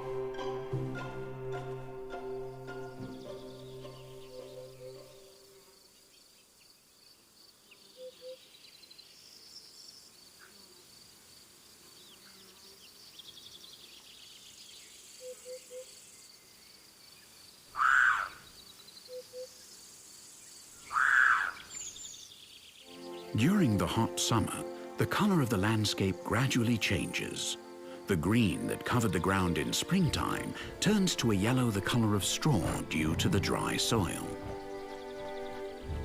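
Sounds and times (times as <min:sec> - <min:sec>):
insects chirring: 0:02.4 - 0:36.0
bird hooting: 0:07.9 - 0:08.4, 0:15.2 - 0:16.0, 0:17.8 - 0:18.4, 0:19.1 - 0:19.5, 0:20.9 - 0:21.8
short arching animal calls: 0:17.7 - 0:19.5, 0:20.8 - 0:21.8.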